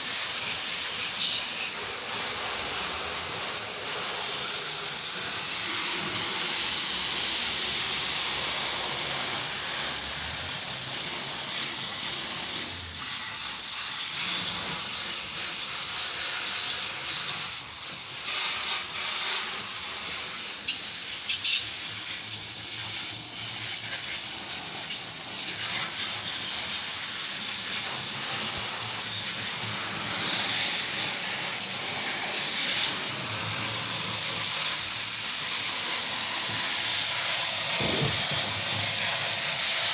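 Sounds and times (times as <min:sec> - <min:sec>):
garden hose spraying water: 0:00.0 - 0:39.9.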